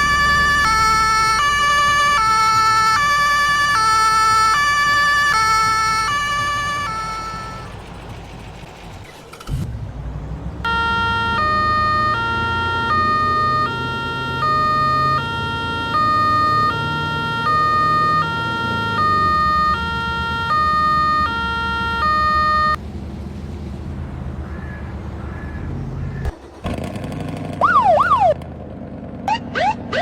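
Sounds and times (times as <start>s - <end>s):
two-tone emergency siren: 0.0s - 7.8s, 10.6s - 22.8s, 27.6s - 28.4s, 29.3s - 30.0s
low engine rumble: 0.0s - 16.7s, 17.5s - 30.0s.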